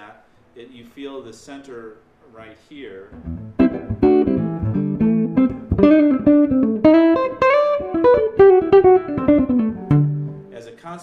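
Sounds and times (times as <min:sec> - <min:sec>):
electric guitar notes and chords: 0:03.1 - 0:10.5.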